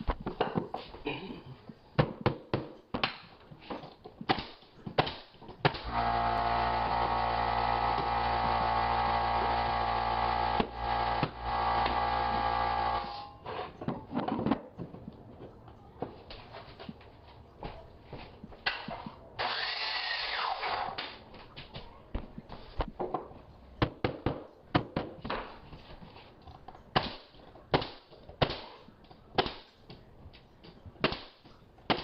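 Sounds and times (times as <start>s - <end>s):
power tool motor running: 5.8s - 13.4s.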